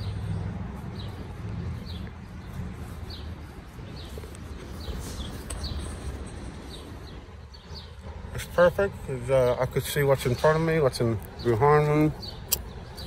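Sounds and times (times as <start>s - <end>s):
small bird chirping: 0.0s - 8.7s.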